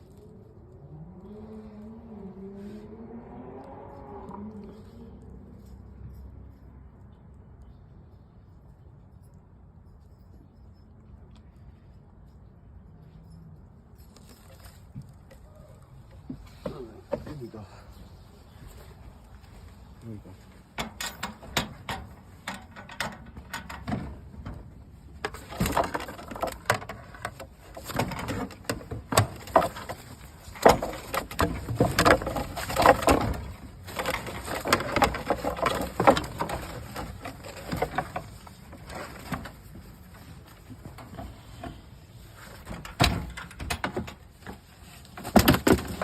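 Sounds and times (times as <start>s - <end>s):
knocks and rattles in coop: 20.8s - 46.0s.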